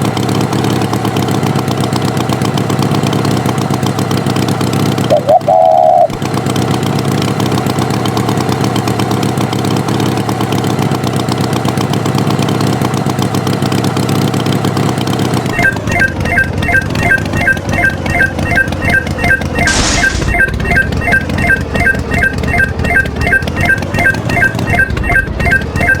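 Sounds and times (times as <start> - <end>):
tractor engine running: 0.0 - 26.0
loud short tone: 18.8 - 23.4.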